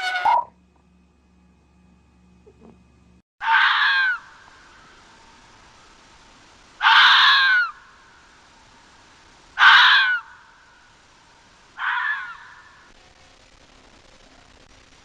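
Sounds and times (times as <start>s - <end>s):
harsh animal call: 0.0s - 0.5s, 3.4s - 5.0s, 6.8s - 8.0s, 9.6s - 10.6s, 11.8s - 12.9s.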